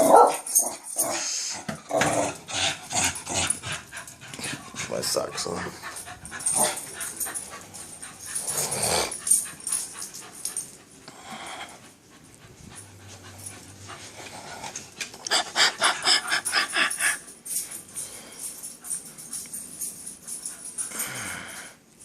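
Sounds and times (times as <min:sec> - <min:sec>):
dog panting fast: 0:03.4 - 0:11.0, 0:11.7 - 0:17.8.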